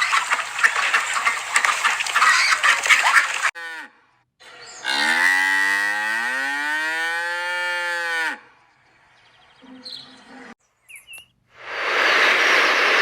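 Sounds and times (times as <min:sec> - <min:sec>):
cow mooing: 0:04.9 - 0:08.5.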